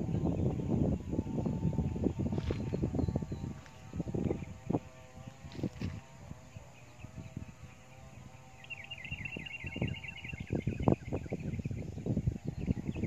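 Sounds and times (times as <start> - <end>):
bird trilling: 8.6 - 11.8.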